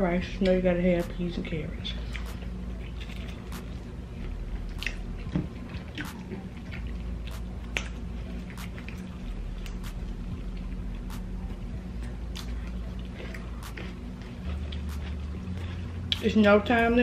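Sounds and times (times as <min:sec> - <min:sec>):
chewing and lip-smacking: 0:01.9 - 0:16.8
wet mouth clicks: 0:04.8 - 0:05.0, 0:12.3 - 0:12.6.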